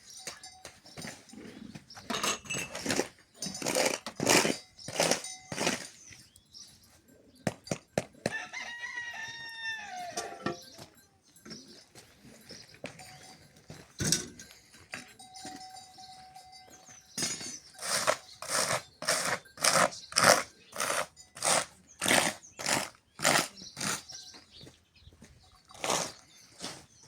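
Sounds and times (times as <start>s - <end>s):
rhythmic scraping strokes: 17.2s - 24.0s.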